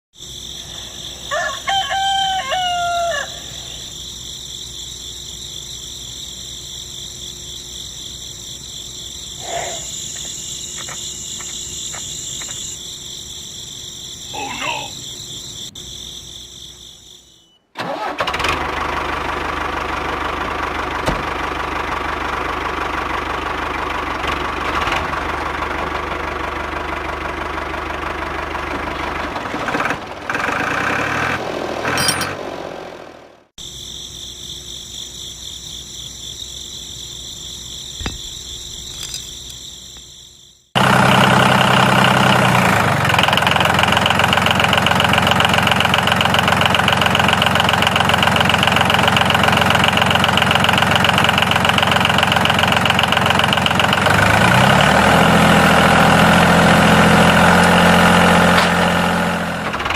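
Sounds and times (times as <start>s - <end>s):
rooster crowing: 1.0s - 3.9s.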